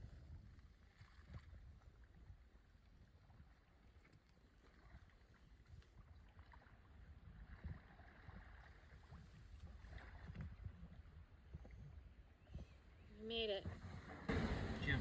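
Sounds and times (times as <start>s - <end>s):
kayak paddle splashing: 0.0s - 15.0s
low rumble: 13.5s - 15.0s.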